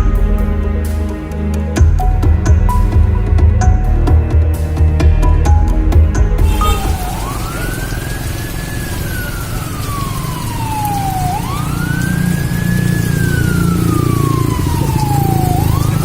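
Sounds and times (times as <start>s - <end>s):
emergency siren wailing: 6.5s - 16.0s.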